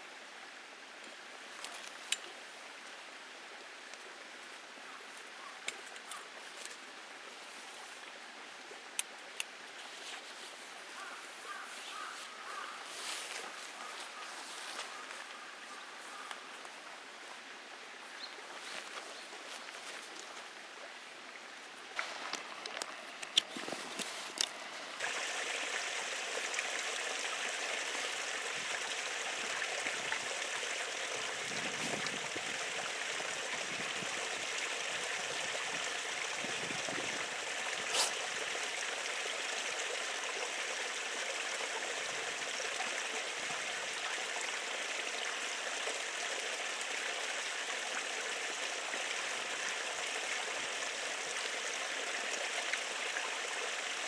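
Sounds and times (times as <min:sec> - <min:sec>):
steady rushing hiss: 0:21.6 - 0:39.1.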